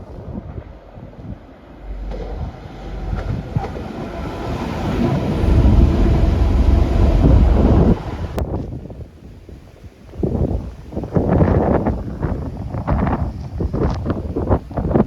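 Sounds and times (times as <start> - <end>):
train passing: 0.0 - 8.9.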